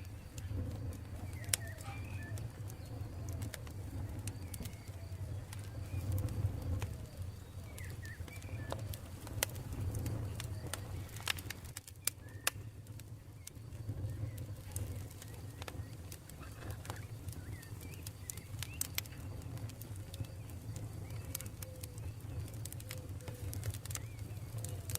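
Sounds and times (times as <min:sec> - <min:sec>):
campfire crackling: 0:00.0 - 0:24.9
faint bird calls: 0:00.1 - 0:09.1, 0:14.0 - 0:24.9.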